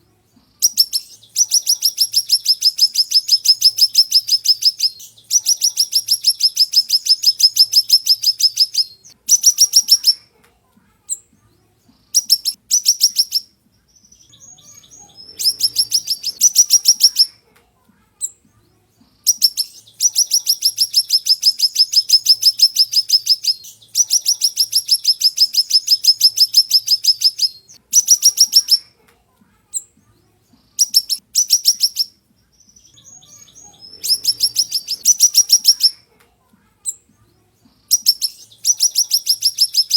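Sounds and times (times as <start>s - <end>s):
soft bird twittering: 0.0s - 10.3s, 11.0s - 17.4s, 18.2s - 28.9s, 29.7s - 36.0s, 36.8s - 39.9s
songbird trilling: 0.6s - 10.2s, 12.2s - 17.3s, 19.3s - 28.8s, 30.8s - 32.1s, 32.7s - 36.0s, 37.9s - 39.9s.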